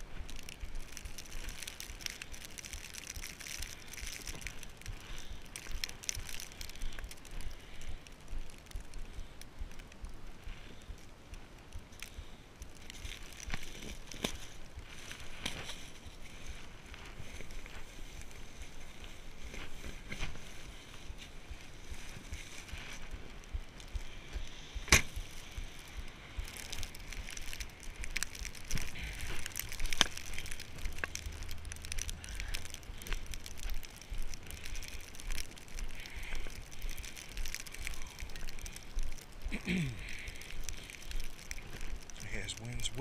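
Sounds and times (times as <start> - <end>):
footsteps crunching in snow: 12.7 - 43.0.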